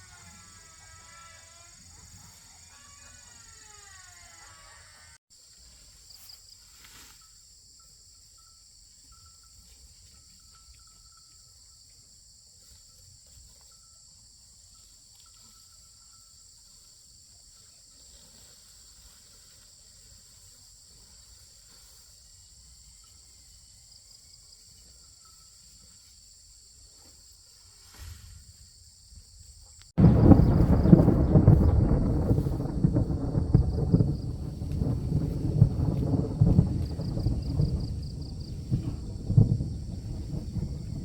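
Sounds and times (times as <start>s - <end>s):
insects chirring: 0.0s - 41.0s
low rumble: 30.0s - 41.0s.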